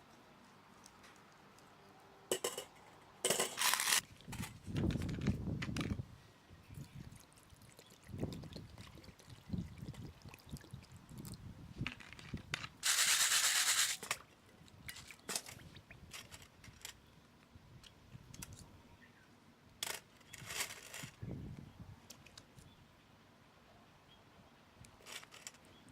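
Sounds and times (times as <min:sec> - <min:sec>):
small hard parts handled: 0:02.3 - 0:06.0, 0:25.0 - 0:25.7.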